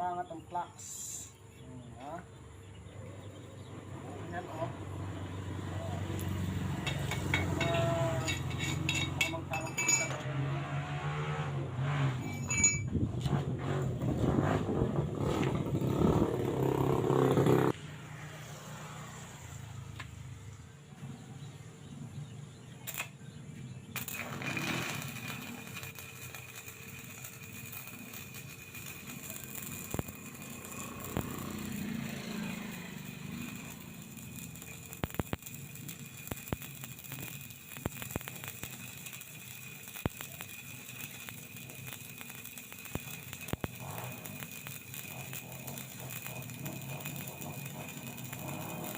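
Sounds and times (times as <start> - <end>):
welding arc crackling: 4.4 - 10.2, 12.2 - 17.8, 23.9 - 48.9
spatter popping: 23.9 - 48.9.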